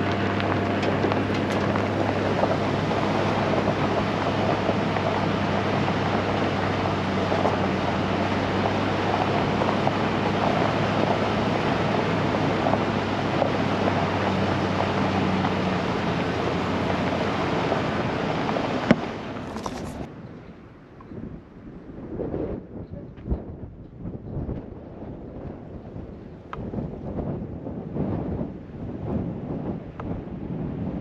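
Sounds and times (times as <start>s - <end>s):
truck engine running: 0.0s - 20.1s
crackling road noise: 0.0s - 31.0s.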